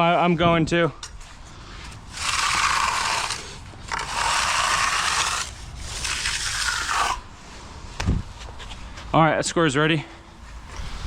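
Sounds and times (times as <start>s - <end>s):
tool scraping across concrete: 1.0s - 7.8s, 10.4s - 11.0s.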